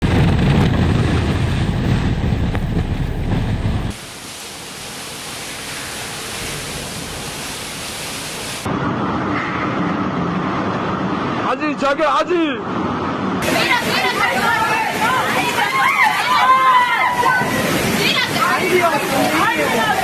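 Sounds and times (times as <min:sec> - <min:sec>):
deep rumbling storm noise: 0:00.0 - 0:04.0
mid-range rushing noise: 0:00.0 - 0:04.0
heavy rain hissing: 0:00.0 - 0:08.7, 0:13.4 - 0:20.0.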